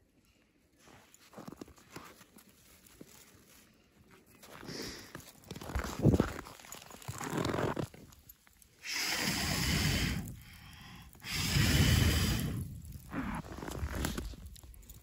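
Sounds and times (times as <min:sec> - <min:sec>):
breath blowing into microphone: 0:08.8 - 0:14.2.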